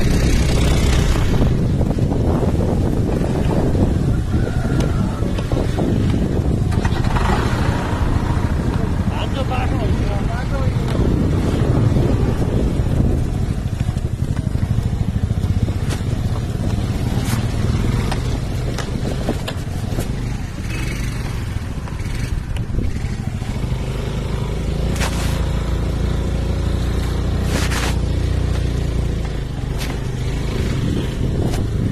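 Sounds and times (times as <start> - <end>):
vehicle engine running: 5.2 - 31.9
knocks and rattles over bumps: 10.7 - 24.1.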